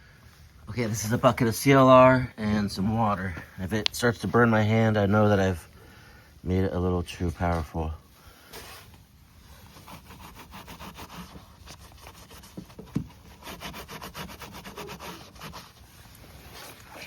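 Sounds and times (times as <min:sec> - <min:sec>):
wet sponge scrubbing car roof: 0:09.5 - 0:16.8.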